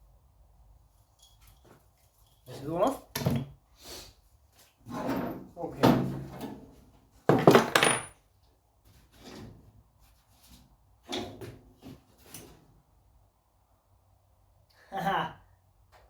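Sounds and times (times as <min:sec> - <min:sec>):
metal tools clattering: 0:07.3 - 0:08.2.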